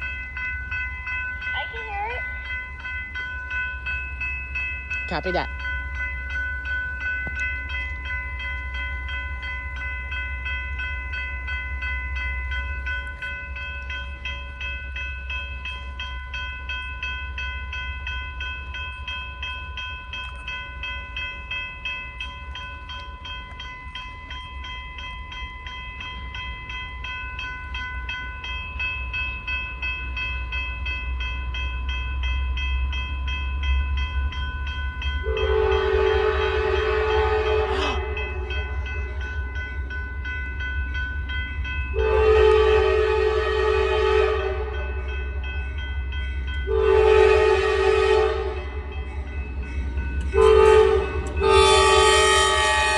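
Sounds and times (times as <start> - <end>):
low rumble of locomotives: 0.0 - 52.9
railroad crossing bell ringing: 0.0 - 52.9
locomotive horn: 35.2 - 38.6, 41.9 - 45.0, 46.7 - 48.8, 50.3 - 52.9.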